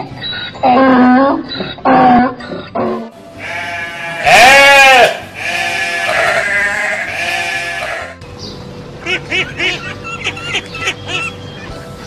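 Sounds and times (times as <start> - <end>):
livestock calling: 0.6 - 8.2.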